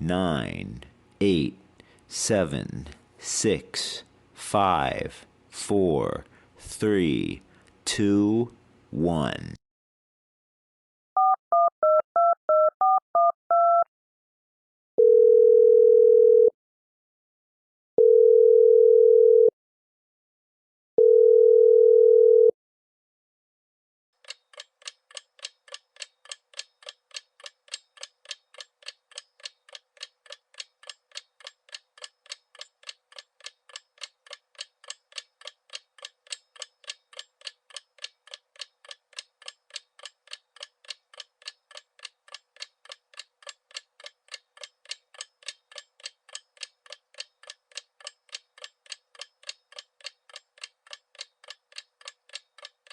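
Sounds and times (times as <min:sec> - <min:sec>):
touch-tone keypad beeps: 0:11.2 - 0:13.9
long telephone line tones: 0:15.0 - 0:16.5, 0:18.0 - 0:19.5, 0:21.0 - 0:22.5.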